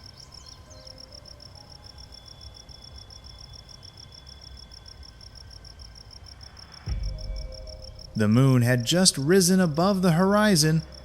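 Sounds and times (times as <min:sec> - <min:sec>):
crickets chirping: 0:00.0 - 0:11.0
faint low rumble: 0:06.2 - 0:11.0.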